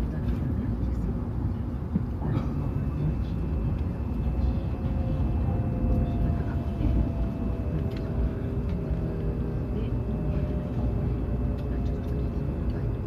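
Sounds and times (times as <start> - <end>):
train cabin rumble: 0.0 - 13.0.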